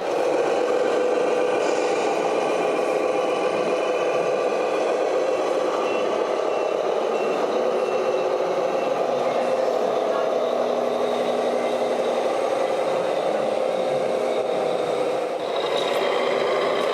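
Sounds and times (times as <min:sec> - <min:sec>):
diesel engine running: 0:06.6 - 0:16.9.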